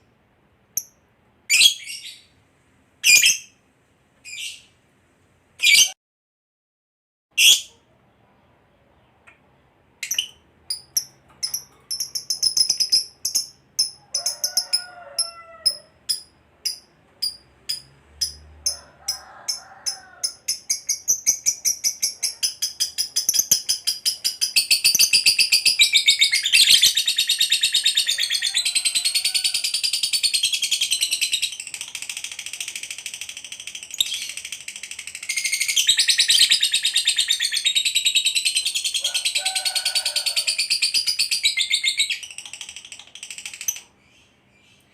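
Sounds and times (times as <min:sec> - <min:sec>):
lovebird chattering song: 0:03.0 - 0:03.5, 0:10.0 - 0:18.4, 0:19.1 - 0:39.4, 0:40.3 - 0:44.8.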